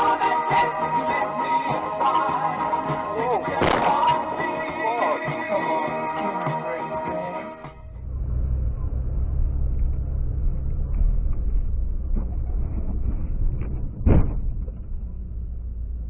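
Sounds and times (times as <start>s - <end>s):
loud thump: 3.6s - 4.2s, 13.5s - 15.0s
car driving rumble: 7.8s - 16.0s.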